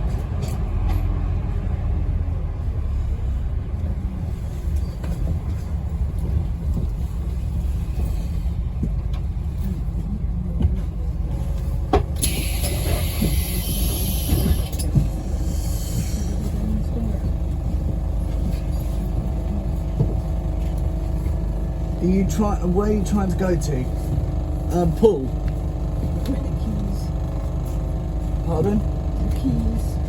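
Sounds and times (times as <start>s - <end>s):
bus diesel engine rumbling: 0.0s - 30.0s
compressed air hissing: 12.2s - 14.7s, 15.3s - 16.4s.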